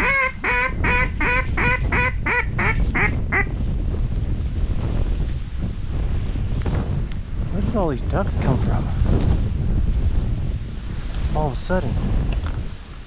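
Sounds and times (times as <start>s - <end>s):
duck call quacking: 0.0s - 3.5s
wind rumble on microphone: 0.0s - 13.0s.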